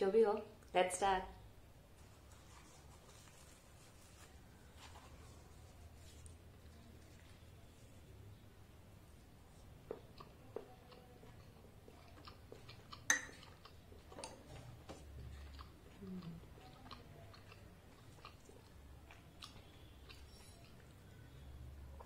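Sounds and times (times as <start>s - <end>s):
close chewing: 9.2s - 22.0s.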